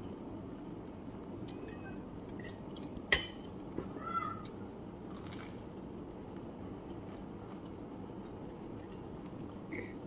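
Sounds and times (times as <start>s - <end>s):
low room hum: 0.0s - 10.0s
faint chewing: 6.8s - 10.0s.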